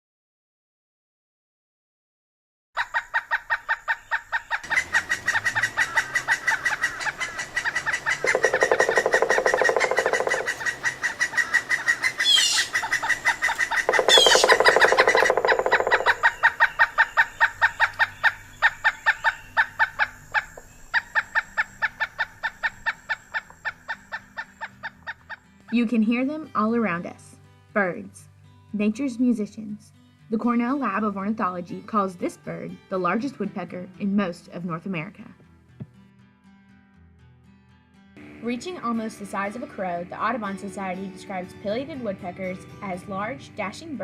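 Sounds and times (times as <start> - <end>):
bird rapid repeated calls: 2.8 - 25.4.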